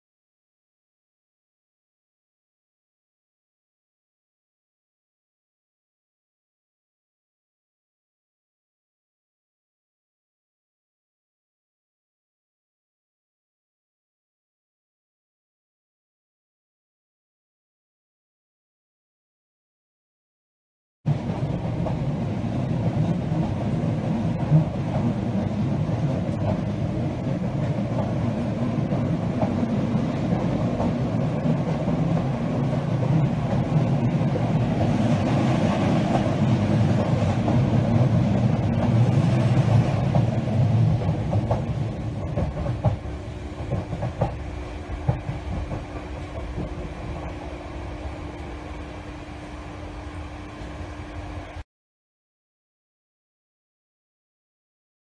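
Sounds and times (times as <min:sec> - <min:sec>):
train rumble: 0:21.1 - 0:51.6
steady hum: 0:40.5 - 0:51.6.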